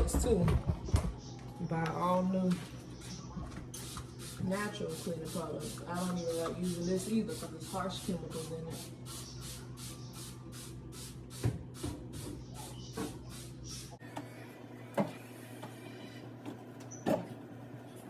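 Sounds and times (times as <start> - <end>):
spray bottle squirting: 3.7 - 12.3.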